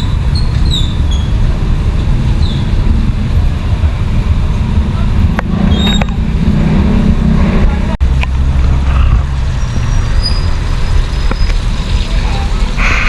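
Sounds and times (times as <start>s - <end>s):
high squeaks and clicks: 0.0s - 1.6s, 5.3s - 6.3s, 8.9s - 12.1s
traffic engine rumble: 0.0s - 13.0s.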